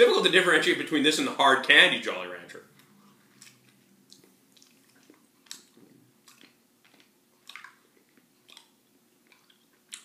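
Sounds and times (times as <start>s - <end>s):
chewing hard candy: 2.8s - 10.0s.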